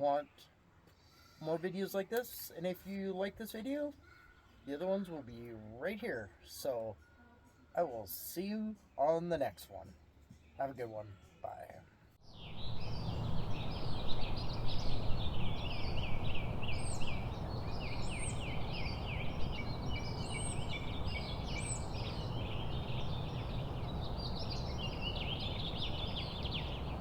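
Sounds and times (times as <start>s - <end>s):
birds chirping: 1.2s - 27.0s
higher arched bird calls: 12.2s - 27.0s
low rumble: 12.3s - 27.0s.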